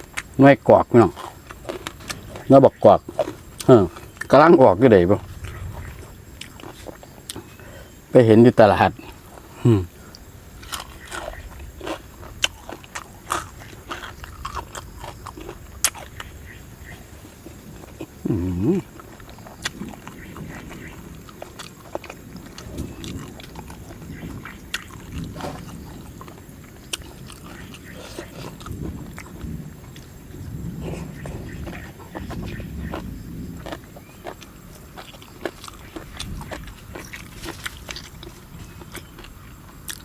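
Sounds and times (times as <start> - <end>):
chewing and crunching food: 0.0 - 40.0
low voiced hum: 17.9 - 19.2.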